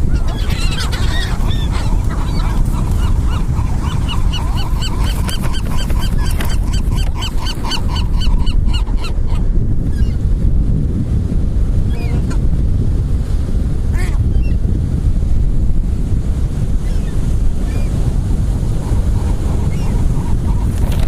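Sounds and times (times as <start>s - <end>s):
gulls squawking: 0.0s - 9.4s, 18.8s - 20.8s
wind: 0.0s - 21.0s.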